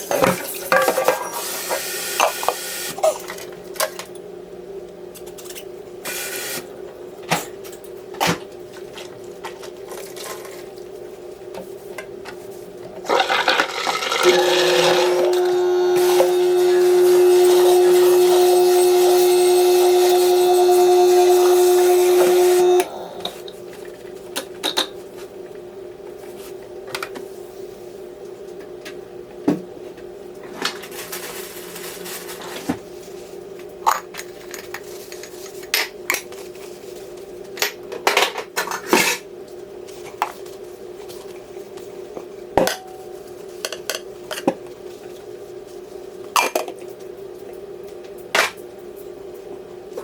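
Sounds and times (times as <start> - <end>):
steady low hum: 14.8 - 24.4.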